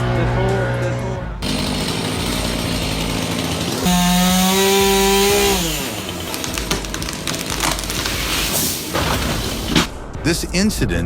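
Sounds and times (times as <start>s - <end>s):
chainsaw engine revving: 1.4s - 9.8s.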